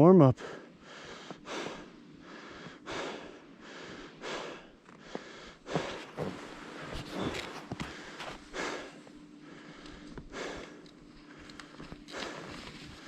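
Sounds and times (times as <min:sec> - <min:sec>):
skis whooshing on snow: 0:05.7 - 0:08.4.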